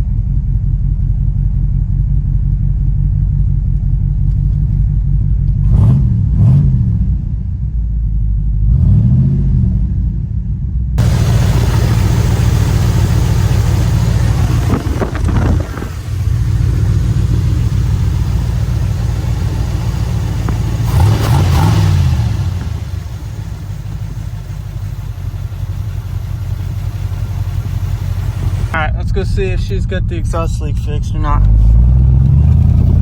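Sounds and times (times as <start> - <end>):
car engine running and revving: 0.0 - 33.0.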